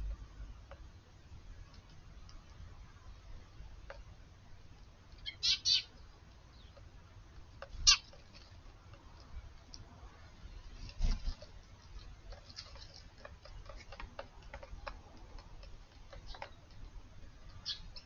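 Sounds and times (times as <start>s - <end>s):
sparrows chirping: 5.1s - 6.9s, 7.7s - 8.6s, 10.3s - 18.0s.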